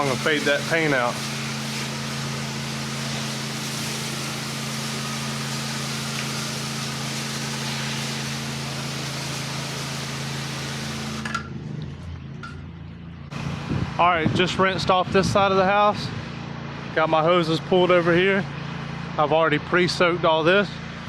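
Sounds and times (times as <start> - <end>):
pressure washer spray hissing: 0.0 - 11.4
pressure washer engine hum: 0.0 - 21.0.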